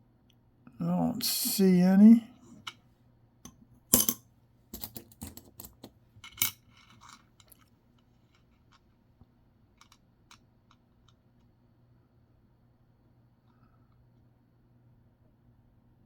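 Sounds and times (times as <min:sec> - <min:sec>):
coins clinking on hard surface: 0:03.9 - 0:04.2, 0:04.8 - 0:06.6.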